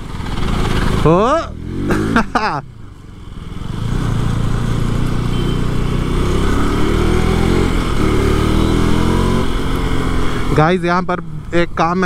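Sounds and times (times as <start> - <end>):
motorcycle engine pulling away: 3.4 - 10.4.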